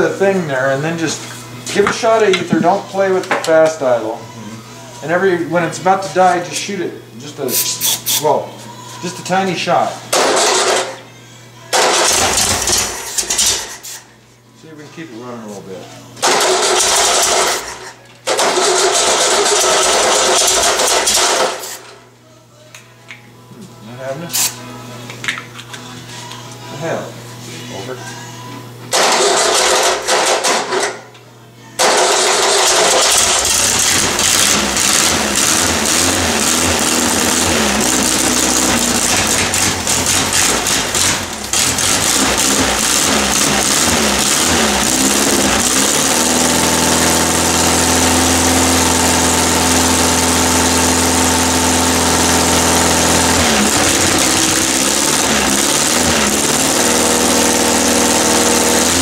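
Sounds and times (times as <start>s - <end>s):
engine running unevenly: 31.9s - 59.0s.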